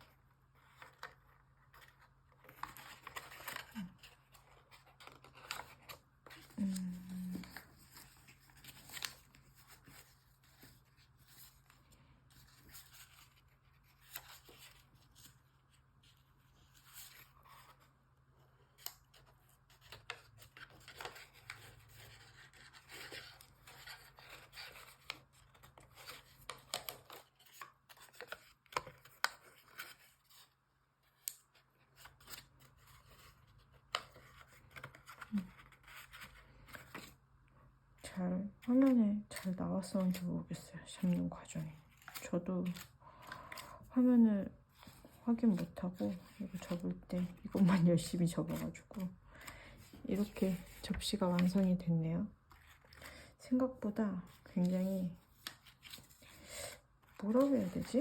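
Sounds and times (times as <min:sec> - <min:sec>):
paper rustling and crinkling: 0:00.0 - 0:37.2, 0:38.0 - 0:44.0, 0:44.6 - 0:51.7, 0:52.4 - 0:53.3, 0:54.2 - 0:58.0
small clicks of paper creasing: 0:18.8 - 0:30.5, 0:54.4 - 0:56.4.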